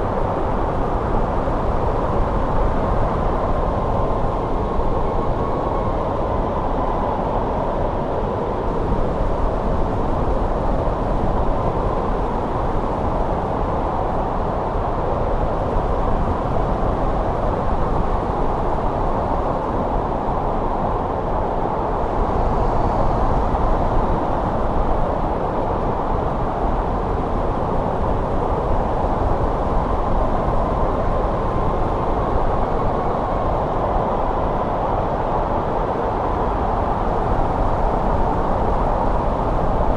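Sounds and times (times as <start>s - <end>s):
faint high wind whistle: 0.0s - 39.9s
snowstorm wind rushing: 0.0s - 39.9s.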